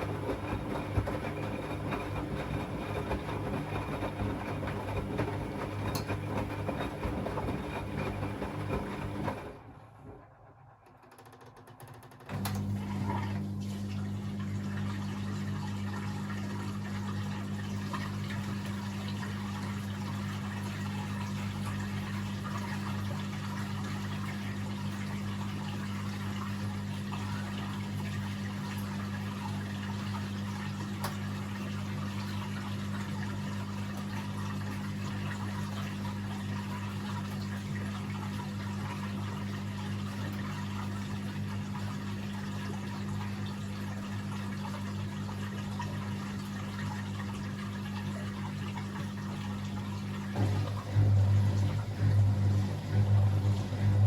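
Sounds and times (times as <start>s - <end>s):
washing machine running: 0.0s - 54.0s
water flowing: 37.6s - 54.0s
low electric hum: 48.1s - 54.0s.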